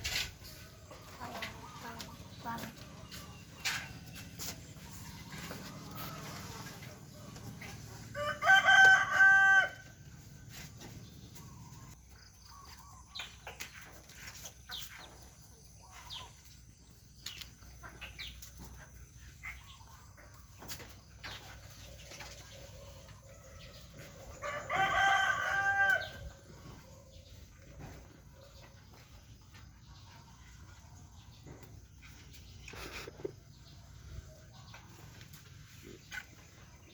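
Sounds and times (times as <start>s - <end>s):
rooster crowing: 8.0s - 9.9s, 24.0s - 26.3s.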